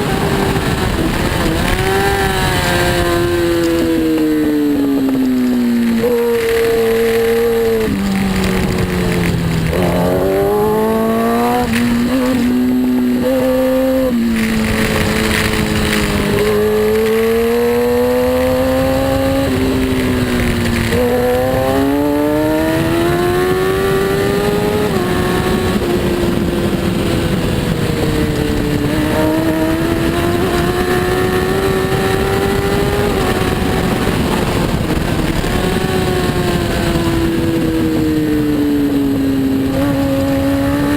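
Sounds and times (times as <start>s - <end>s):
superbike engine revving: 0.0s - 40.9s.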